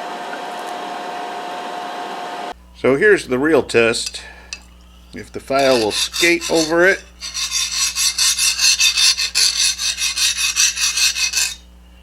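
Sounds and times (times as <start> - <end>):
file rasping on steel blade: 4.8 - 11.6.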